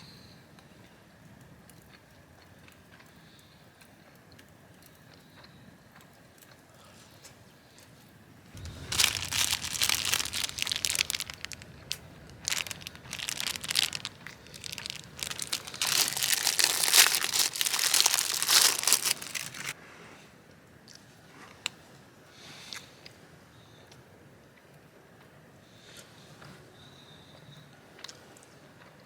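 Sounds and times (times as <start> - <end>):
plastic bag crinkling: 8.6 - 19.8.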